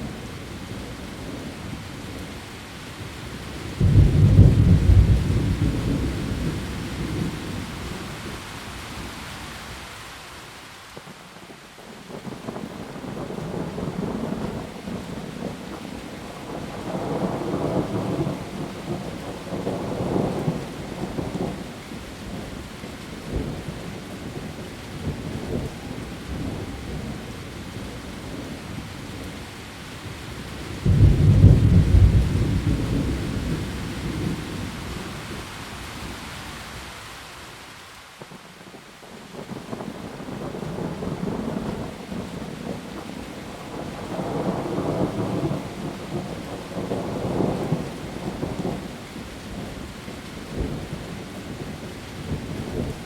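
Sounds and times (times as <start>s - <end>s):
heavy rain on leaves: 0.0s - 53.0s
thunder rumbling and cracking: 3.8s - 8.0s, 30.8s - 35.0s, 43.6s - 48.9s.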